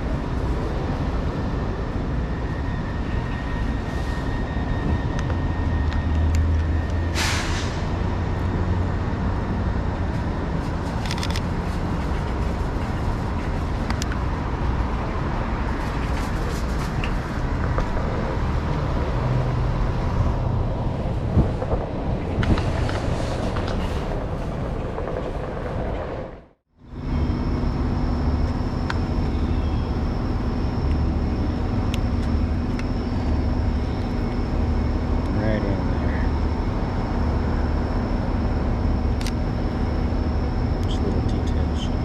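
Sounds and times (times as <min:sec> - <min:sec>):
wind rumble on microphone: 0:00.0 - 0:07.0, 0:07.8 - 0:42.0
electric board rolling noise: 0:08.0 - 0:29.4
steady hum: 0:26.8 - 0:42.0.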